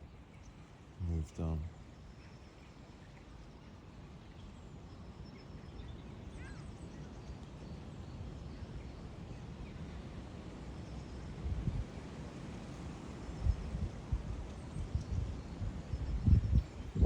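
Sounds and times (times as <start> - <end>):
wind rumble on microphone: 10.9 - 17.0.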